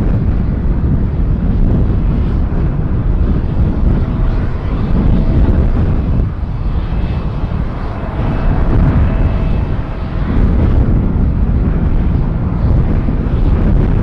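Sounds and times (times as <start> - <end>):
faint steady whine: 0.0 - 14.0
jet engines rumbling: 0.0 - 14.0.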